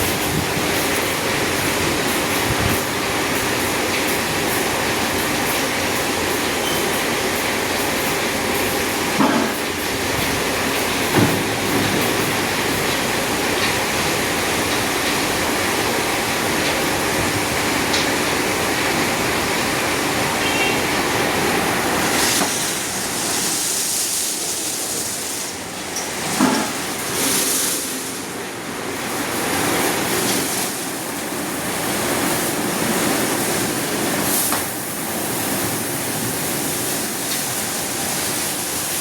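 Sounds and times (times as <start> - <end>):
car wash machine rumbling: 0.0 - 39.0
water spray hiss: 20.3 - 25.6.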